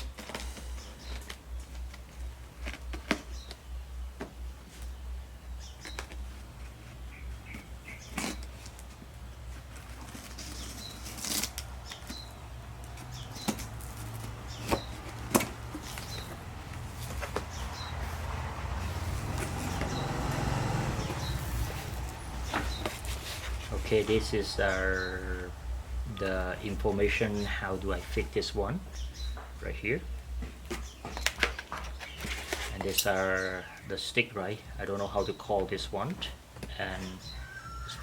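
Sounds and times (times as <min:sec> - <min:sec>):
wrapping rustling and flapping: 0:00.0 - 0:03.7, 0:05.8 - 0:19.9, 0:21.1 - 0:24.4, 0:30.6 - 0:33.0
steady low hum: 0:00.0 - 0:31.2.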